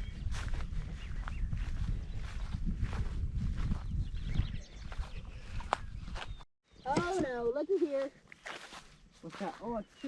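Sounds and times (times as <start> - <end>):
microphone handling rumble: 0.0 - 6.4
footsteps on a trail: 0.0 - 10.0
wind: 0.0 - 10.0.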